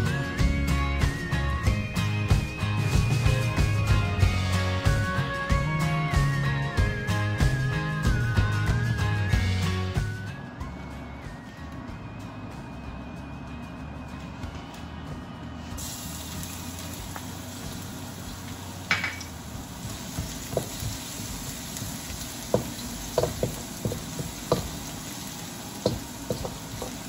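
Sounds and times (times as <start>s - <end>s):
garlic sizzling in hot oil: 15.8s - 27.0s.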